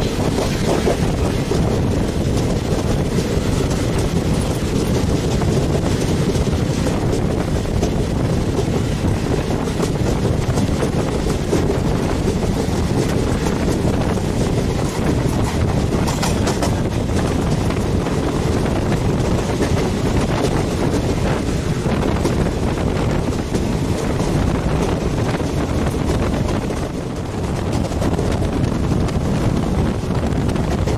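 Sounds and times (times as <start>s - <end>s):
train coaches rumbling on rails: 0.0s - 30.9s
wind rushing over microphone: 0.0s - 30.9s.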